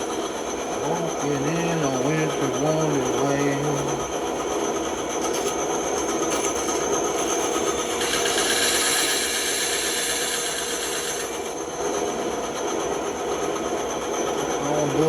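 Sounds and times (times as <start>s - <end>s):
bandsaw cutting wood: 7.2s - 11.5s.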